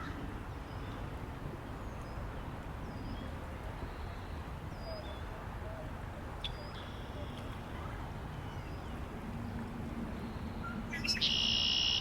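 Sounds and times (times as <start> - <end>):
songbirds chirping and whistling: 6.4 - 7.5, 10.2 - 12.0.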